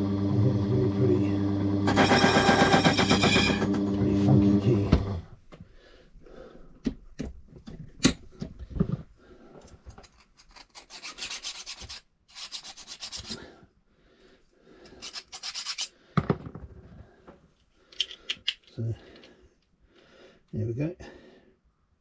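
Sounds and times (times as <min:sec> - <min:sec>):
metal file rasping on key: 0:15.0 - 0:15.9.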